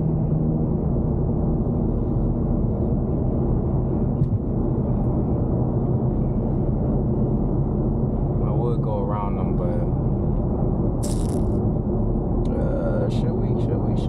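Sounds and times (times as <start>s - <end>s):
car engine and road drone: 0.0s - 14.0s.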